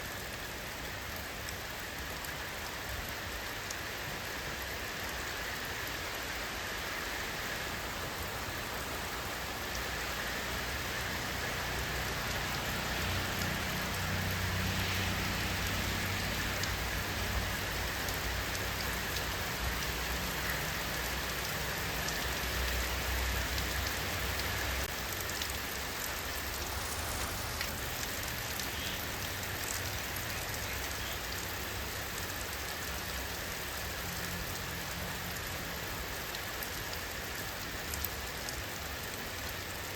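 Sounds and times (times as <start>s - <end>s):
rain hissing on surfaces: 0.0s - 39.9s.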